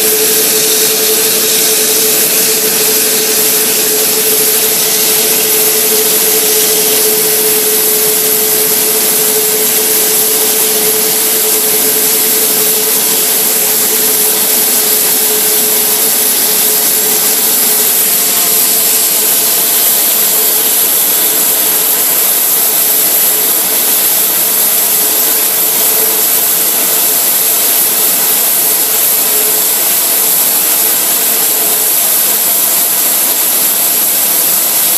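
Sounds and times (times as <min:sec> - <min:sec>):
jet engine roar: 0:00.0 - 0:23.8
high jet engine whine: 0:00.0 - 0:34.9.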